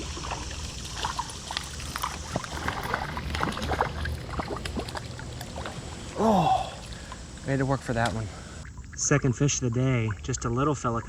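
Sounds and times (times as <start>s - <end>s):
fish splashing at the surface: 0.0s - 8.6s
low steady rumble: 0.0s - 8.7s
creek water splashing and trickling: 0.0s - 11.0s.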